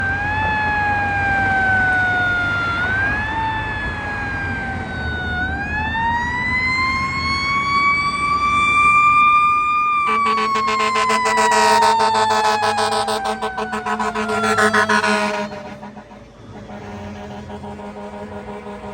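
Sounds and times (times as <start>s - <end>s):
fire truck siren wailing: 0.0s - 18.9s
low horn blast: 10.0s - 18.9s.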